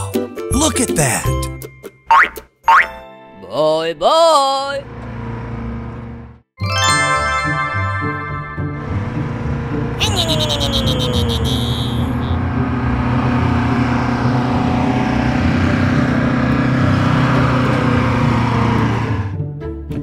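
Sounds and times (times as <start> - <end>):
car engine running: 8.6 - 19.4.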